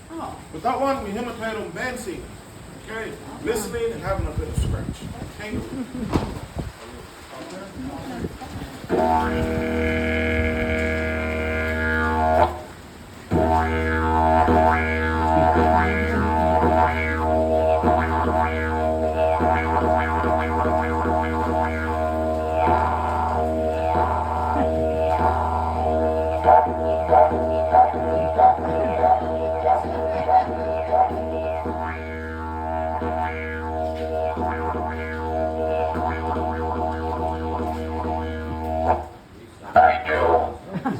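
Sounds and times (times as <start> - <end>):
didgeridoo drone with rhythmic pulses: 8.9 - 39.2.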